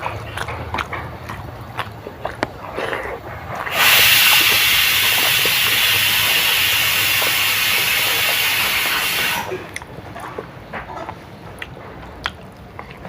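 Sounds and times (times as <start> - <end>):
mouth clicks of chewing: 0.0 - 13.0
loud steady hiss: 3.7 - 9.7.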